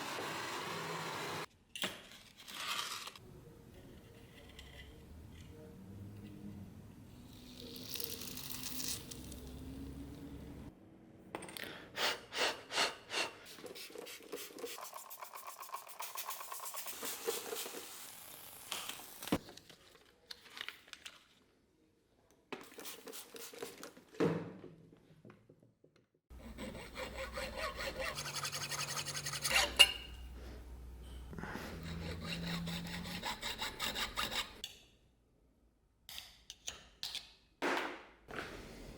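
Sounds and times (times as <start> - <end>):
hand tool rasping: 26.4 - 30.0, 31.6 - 34.6.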